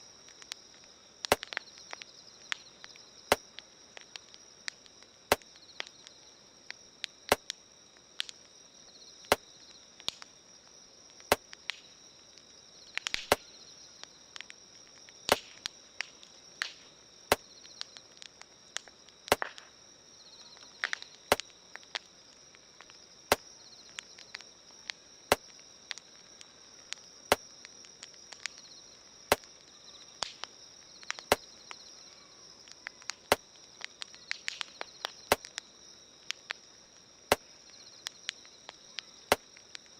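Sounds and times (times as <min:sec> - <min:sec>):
campfire crackling and popping: 0:00.0 - 0:39.9
night insects chirring: 0:00.0 - 0:39.9
sharp clicks: 0:32.8 - 0:35.6.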